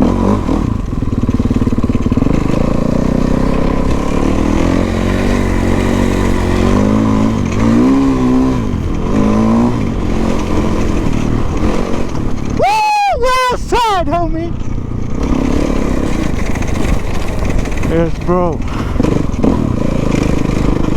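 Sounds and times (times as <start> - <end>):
dirt bike engine revving: 0.0 - 20.9.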